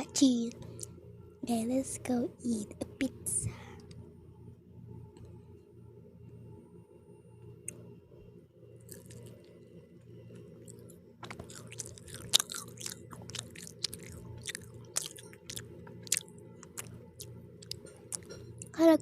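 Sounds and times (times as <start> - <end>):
steady low hum: 0.0 - 19.0
person chewing pizza: 8.9 - 9.5, 10.6 - 18.8.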